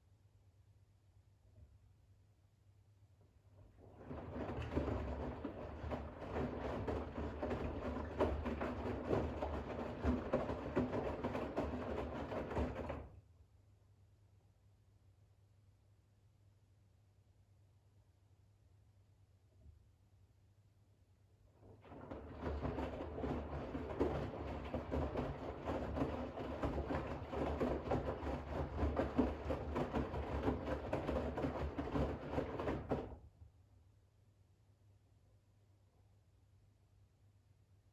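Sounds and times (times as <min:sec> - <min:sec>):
washing machine drum tumbling: 0:03.9 - 0:13.0, 0:21.8 - 0:33.2.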